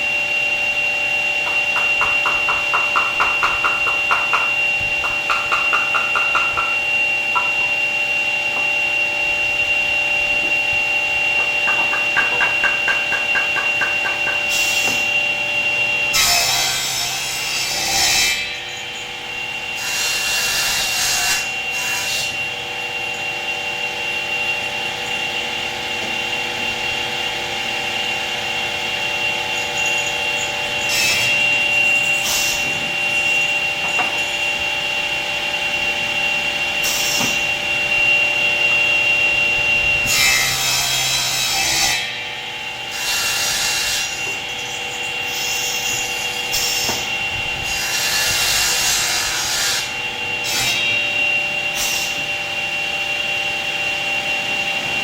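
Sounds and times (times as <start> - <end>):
woodworking machine motors whining: 0.0 - 55.0
rasping sawing of wood: 1.4 - 7.9, 11.3 - 15.2.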